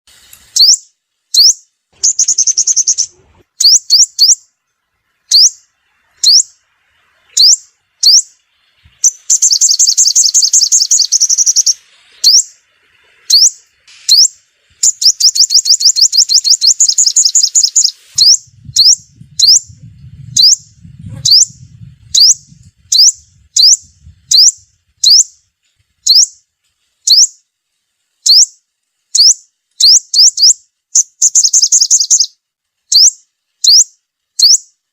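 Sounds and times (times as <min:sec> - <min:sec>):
bird buzzy trills: 0:00.5 - 0:27.5, 0:28.1 - 0:34.9
bird chip notes: 0:01.4 - 0:04.4.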